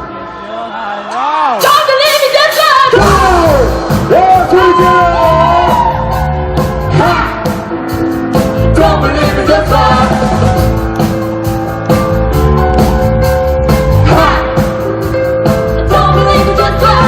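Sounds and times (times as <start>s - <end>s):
bass and drums: 1.6s - 17.0s.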